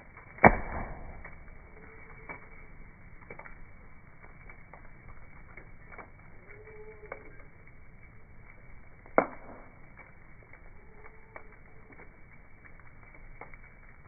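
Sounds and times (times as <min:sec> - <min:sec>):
campfire crackling and popping: 0:00.0 - 0:14.0
thin whistling tones: 0:06.4 - 0:07.5.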